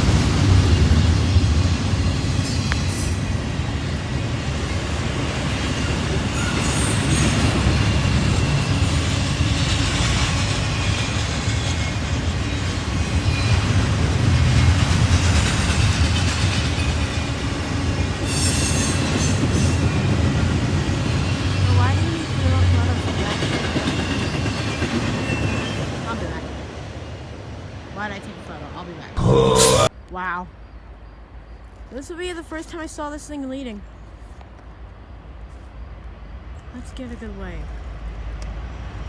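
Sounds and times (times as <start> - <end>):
freight train rumbling: 0.0 - 29.1.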